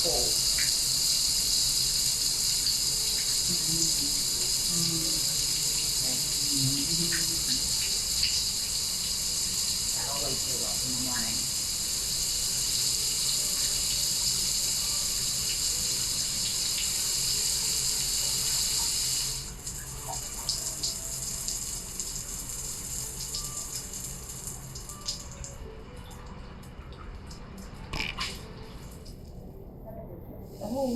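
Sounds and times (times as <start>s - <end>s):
water drips and taps: 0.0s - 0.8s, 2.5s - 8.8s, 19.6s - 29.2s
shower spraying: 0.0s - 25.5s.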